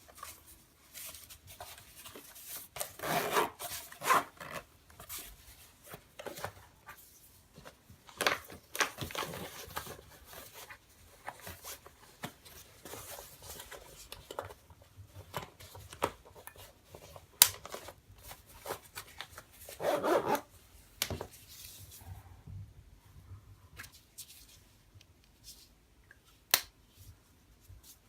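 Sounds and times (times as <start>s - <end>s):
fabric and plastic rustling: 0.0s - 22.2s.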